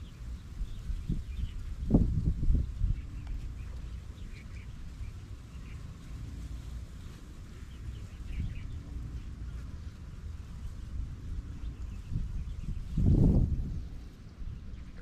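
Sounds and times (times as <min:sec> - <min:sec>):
low outdoor rumble: 0:00.0 - 0:15.0
faint bird chirps: 0:14.2 - 0:15.0.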